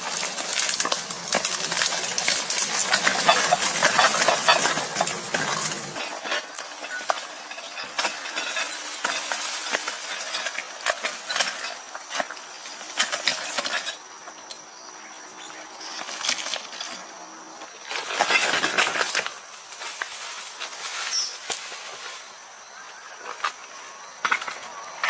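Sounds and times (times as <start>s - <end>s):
small objects clicking and clinking: 0.0s - 14.0s.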